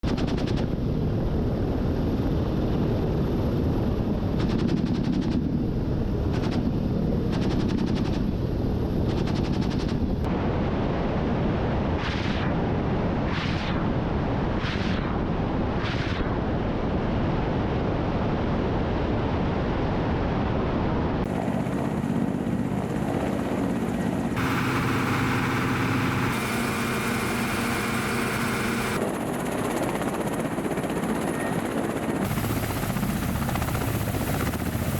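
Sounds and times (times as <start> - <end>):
helicopter engine and rotor: 0.1 - 10.3, 21.2 - 34.9
rapid weapon fire: 24.4 - 29.0.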